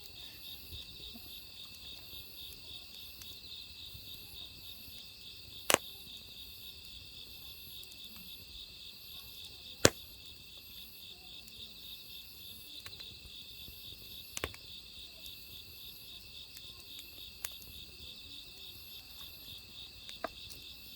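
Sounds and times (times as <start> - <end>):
crickets chirping: 0.0 - 20.9
firewood popping and cracking: 5.0 - 5.9, 9.8 - 10.4, 14.2 - 14.8.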